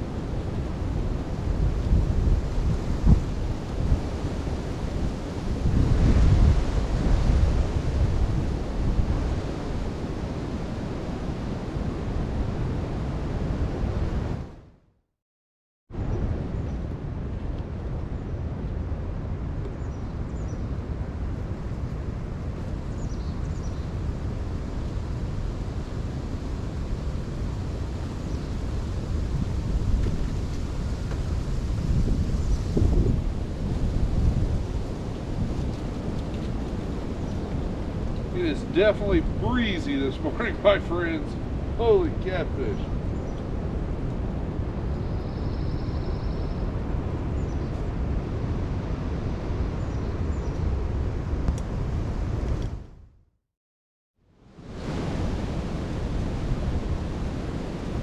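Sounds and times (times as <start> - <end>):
strong wind buffeting microphone: 0.0 - 14.6, 16.0 - 53.0, 54.6 - 58.0
faint high bird chirps: 45.0 - 46.6.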